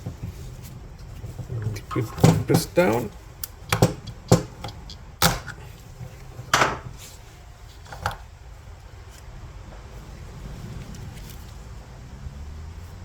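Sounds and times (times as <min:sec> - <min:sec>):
knocks and clicks of hand tools: 0:01.7 - 0:07.0.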